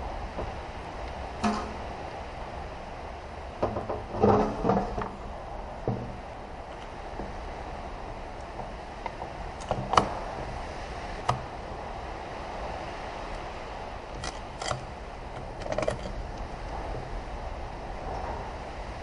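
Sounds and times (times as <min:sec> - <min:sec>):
steady background hum: 0:00.0 - 0:19.0
clicks and knocks of metal parts: 0:14.2 - 0:16.2.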